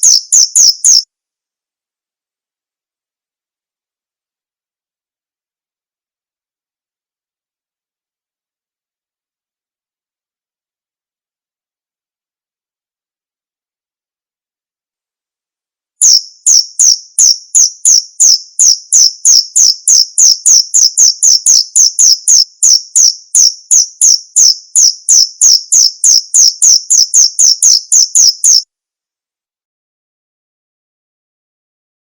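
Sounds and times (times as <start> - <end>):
cricket chirping: 0.0 - 1.0, 16.0 - 28.6.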